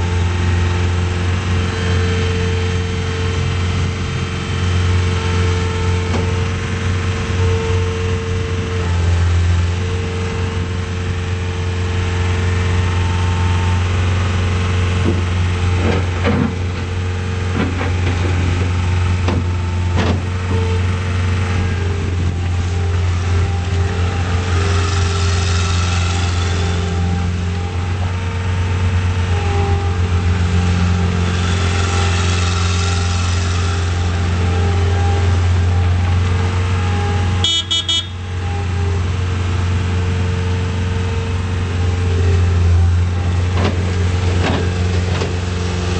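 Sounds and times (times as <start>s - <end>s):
skid steer diesel engine running: 0.0s - 45.9s.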